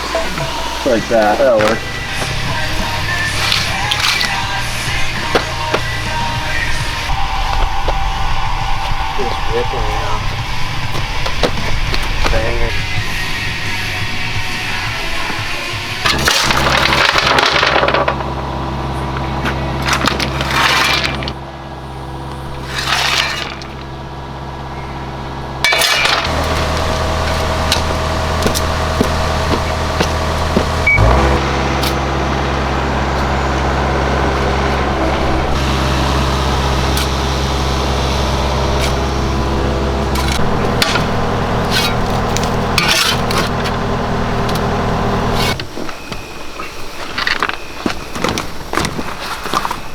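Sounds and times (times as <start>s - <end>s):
machine humming: 0.0s - 46.1s.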